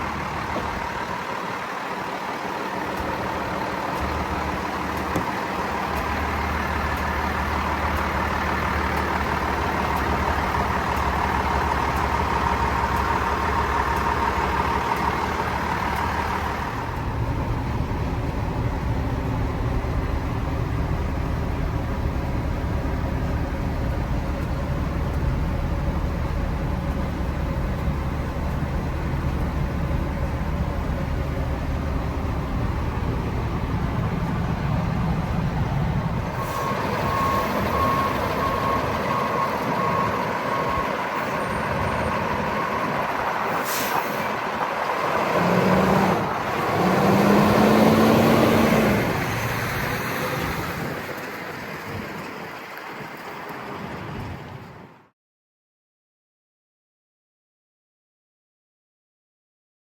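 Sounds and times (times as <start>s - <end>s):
diesel truck idling: 0.0s - 52.7s
backup alarm beeping: 36.4s - 43.0s.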